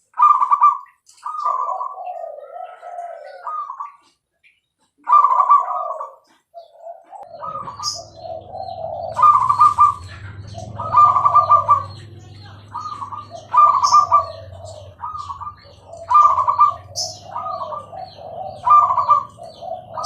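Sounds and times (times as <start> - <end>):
dove cooing: 0.0 - 4.2, 5.0 - 20.0.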